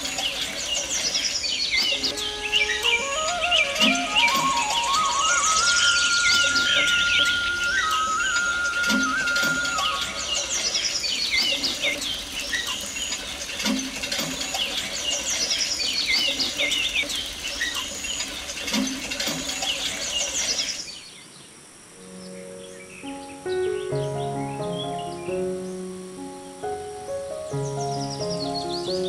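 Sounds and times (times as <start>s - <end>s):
small birds chirping: 0.0s - 29.0s
music: 1.8s - 10.6s, 22.0s - 29.0s.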